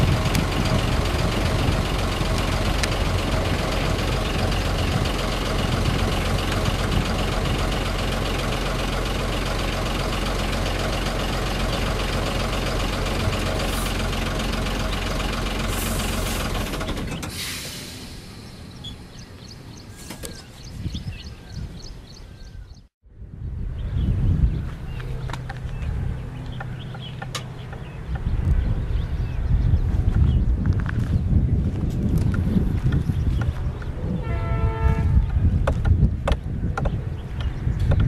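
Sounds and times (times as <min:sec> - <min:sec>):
train coaches rolling: 0:00.0 - 0:20.5
diesel train engine rumble: 0:00.0 - 0:38.0.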